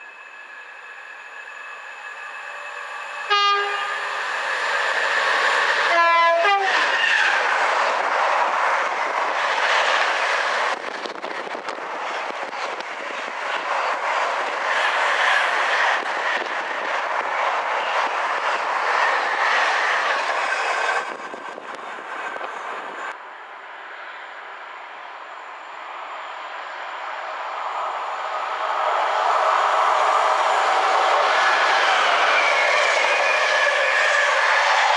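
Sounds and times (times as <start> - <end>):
train wheel and rail noise: 0.0 - 34.9
train horn: 3.3 - 4.0, 5.9 - 6.9.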